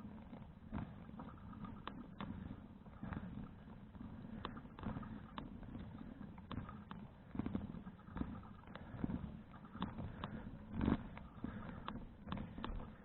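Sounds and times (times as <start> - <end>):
bike clicks and rattles: 4.3 - 13.0.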